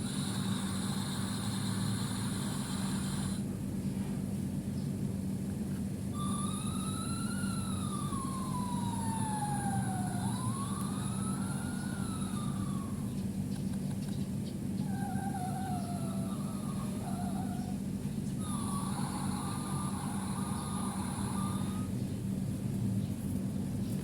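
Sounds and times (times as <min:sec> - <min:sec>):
toy speaker fire engine siren: 0:00.1 - 0:03.4, 0:06.2 - 0:13.1, 0:14.9 - 0:17.6, 0:18.4 - 0:21.9
low engine rumble: 0:05.9 - 0:24.0.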